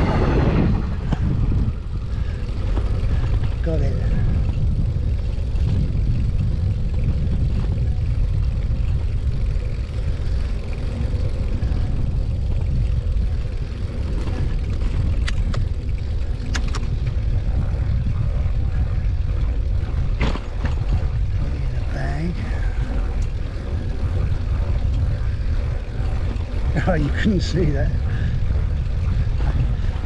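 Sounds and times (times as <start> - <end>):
wind buffeting microphone: 0.0 - 30.0
sharp clicks: 16.4 - 16.9.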